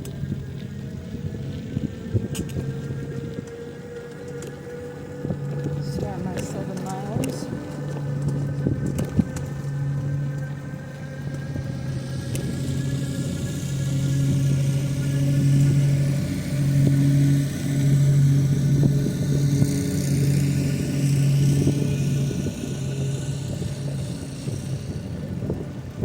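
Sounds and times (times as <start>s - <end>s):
low motor hum: 0.0s - 26.0s
rushing background noise: 0.0s - 26.0s.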